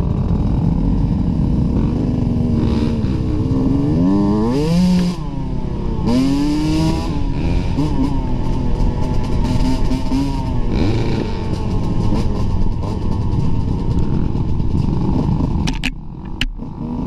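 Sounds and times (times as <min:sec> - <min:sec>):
dirt bike engine revving: 0:00.5 - 0:17.0.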